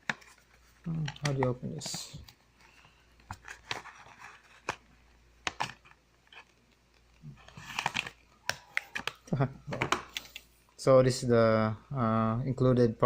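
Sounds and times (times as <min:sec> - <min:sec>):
crinkly packaging rustling: 0:00.0 - 0:10.4.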